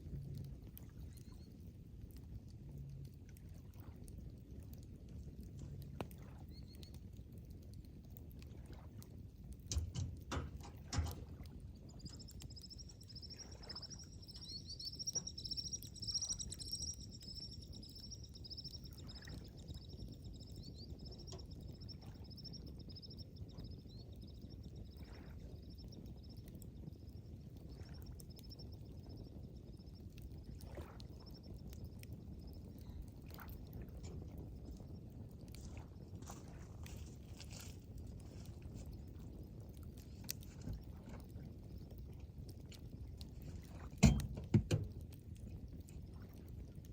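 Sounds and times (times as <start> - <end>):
campfire crackling: 0.0 - 24.8, 25.9 - 46.9
fire pops: 9.0 - 18.7, 42.8 - 45.4
low steady rumble: 9.6 - 25.1
high chirring trill: 12.1 - 20.4.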